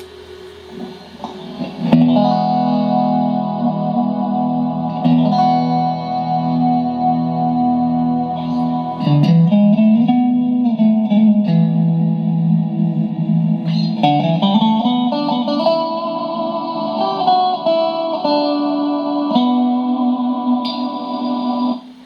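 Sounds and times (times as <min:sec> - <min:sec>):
clean electric guitar with reverb: 0:00.7 - 0:22.0.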